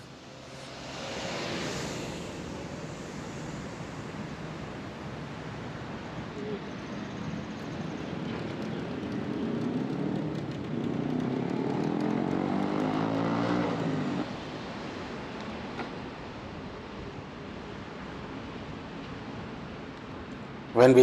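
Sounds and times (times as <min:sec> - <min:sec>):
vehicle passing by: 0:00.0 - 0:05.0, 0:08.2 - 0:15.3
road noise: 0:00.0 - 0:21.0
wind: 0:00.0 - 0:21.0.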